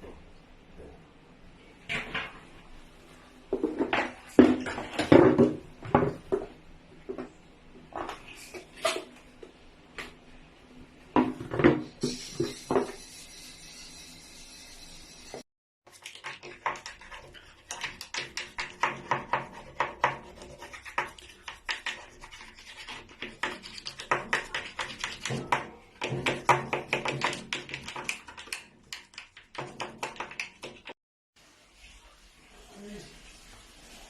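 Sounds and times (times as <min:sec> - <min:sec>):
brush scrubbing: 0:12.1 - 0:31.0.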